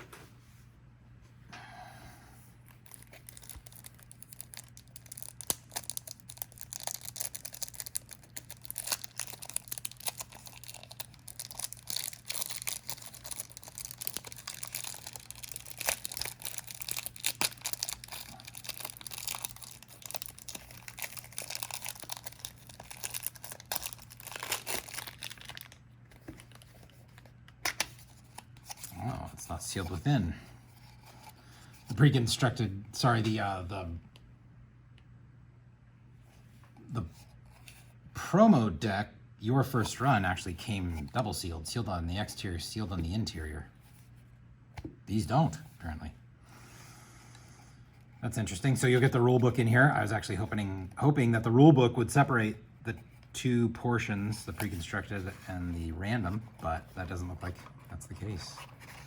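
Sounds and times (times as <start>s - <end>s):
plastic wrap tearing and crinkling: 2.7s - 27.1s.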